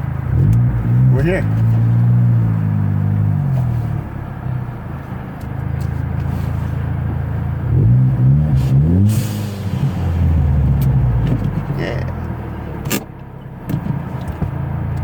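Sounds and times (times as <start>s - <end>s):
car engine running and revving: 0.0s - 15.0s.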